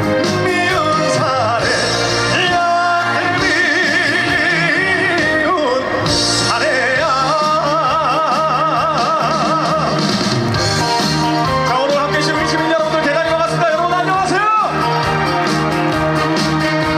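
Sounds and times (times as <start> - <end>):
man singing with vibrato: 0.0 - 10.3
band playing a steady beat: 0.0 - 16.9.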